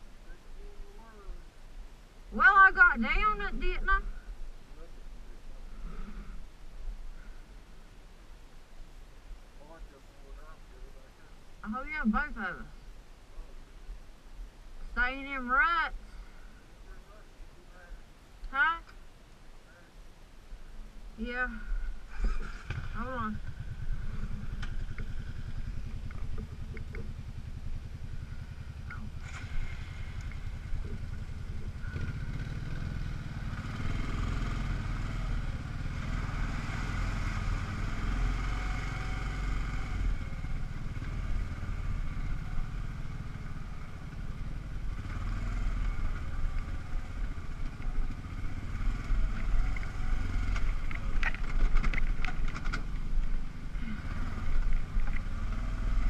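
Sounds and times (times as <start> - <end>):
atv engine running: 2.3 - 7.6, 21.2 - 56.0.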